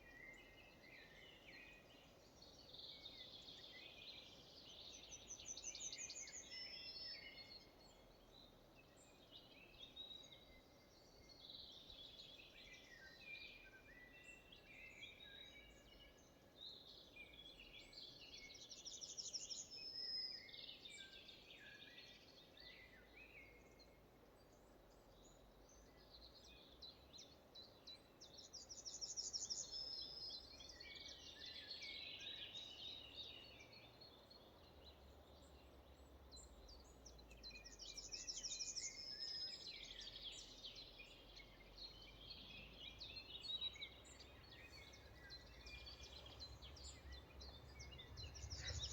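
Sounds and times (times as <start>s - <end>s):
songbird trilling song: 0.0s - 48.9s
background hiss: 28.1s - 48.9s
birds chirping: 30.7s - 48.9s.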